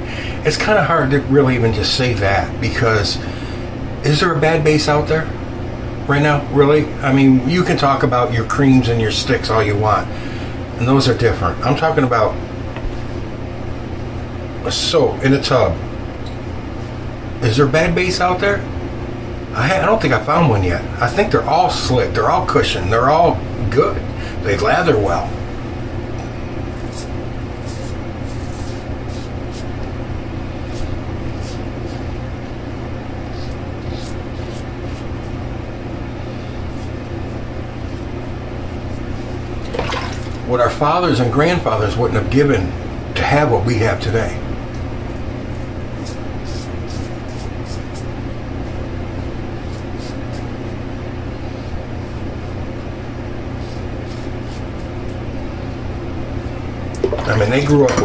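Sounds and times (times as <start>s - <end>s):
steady low hum: 0.0s - 58.0s
razor scraping stubble: 26.7s - 29.8s, 53.5s - 55.2s
razor scratching stubble: 26.7s - 29.8s, 30.6s - 32.1s, 33.2s - 35.3s, 45.5s - 48.1s, 49.6s - 50.5s, 53.5s - 55.2s.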